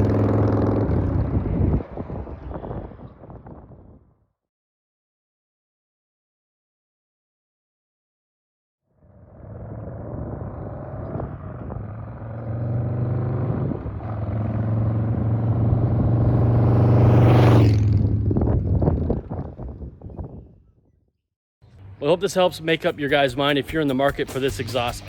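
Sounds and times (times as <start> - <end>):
motorcycle exhaust passing by: 0.0 - 3.4, 9.0 - 20.4.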